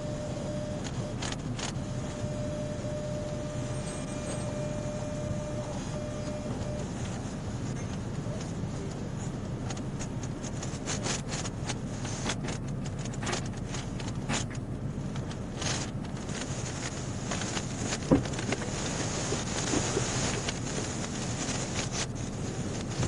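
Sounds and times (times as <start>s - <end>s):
motor vehicle rumble: 0.7s - 23.0s
clicks and rustling: 9.6s - 23.0s.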